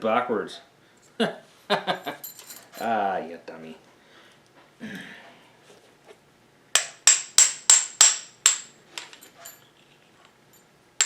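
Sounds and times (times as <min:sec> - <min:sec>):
hammer striking metal: 0:06.8 - 0:09.2.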